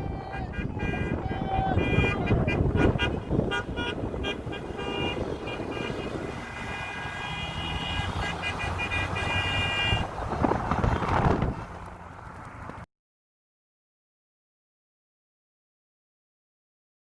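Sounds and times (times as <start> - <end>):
car and truck horns honking: 0.1 - 11.3.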